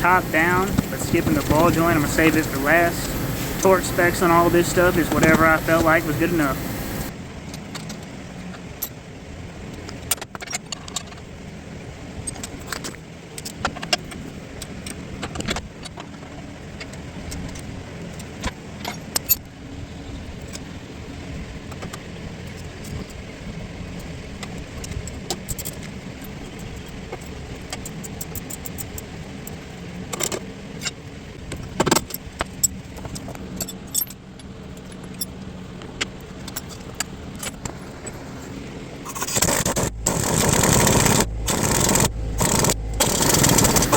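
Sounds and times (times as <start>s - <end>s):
steady low hum: 0.0s - 7.2s, 32.5s - 43.9s.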